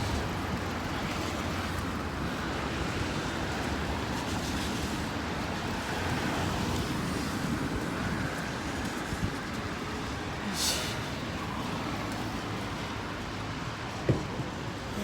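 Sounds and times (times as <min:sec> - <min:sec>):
wind rumbling on microphone: 0:00.0 - 0:10.5
city traffic on wet street: 0:00.0 - 0:15.0
strong wind: 0:00.0 - 0:15.0.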